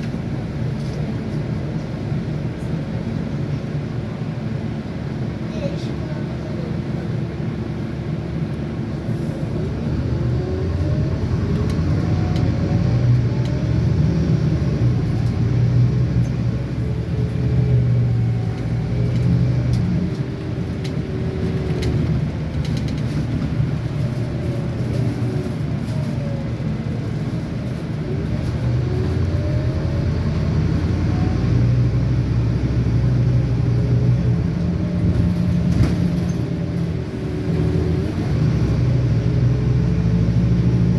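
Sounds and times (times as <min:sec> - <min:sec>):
bus engine rumbling: 0:00.0 - 0:40.9.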